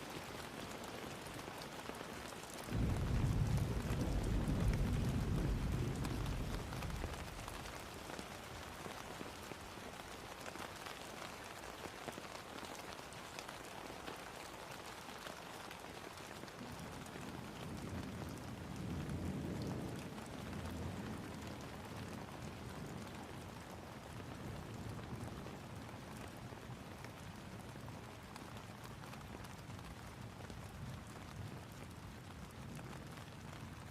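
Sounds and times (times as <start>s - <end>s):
rain pattering on a surface: 0.0s - 33.9s
low rumble: 2.8s - 7.4s.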